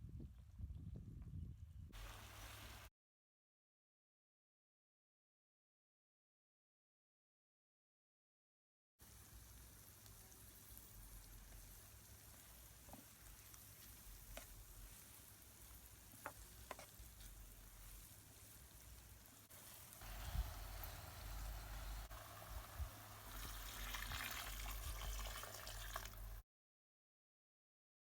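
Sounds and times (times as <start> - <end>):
food sizzling in a pot: 2.0 - 2.9, 9.0 - 26.4.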